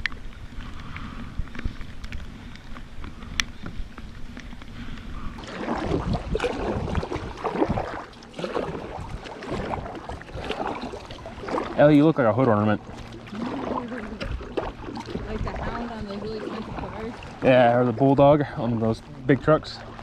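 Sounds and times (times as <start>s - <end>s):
light ticks: 0.0s - 5.1s
paddle strokes splashing water: 0.0s - 20.0s
wind rumbling on microphone: 0.0s - 20.0s.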